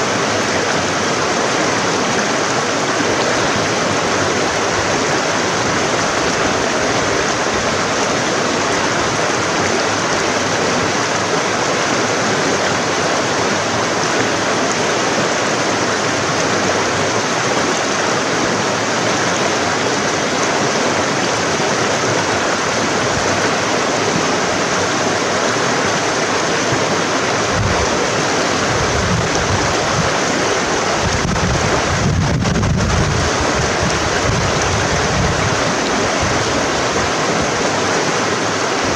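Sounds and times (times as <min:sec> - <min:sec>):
stream running water: 0:00.0 - 0:38.9
wind buffeting microphone: 0:27.3 - 0:37.7.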